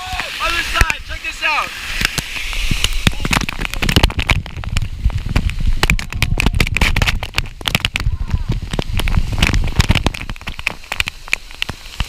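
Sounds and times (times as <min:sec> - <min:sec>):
spray spattering on camera: 0:00.0 - 0:12.0
waterfall rumble: 0:00.0 - 0:12.0.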